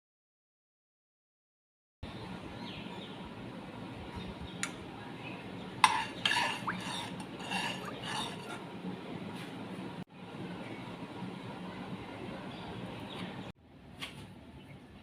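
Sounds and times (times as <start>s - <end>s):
steady low hum: 2.0s - 15.0s.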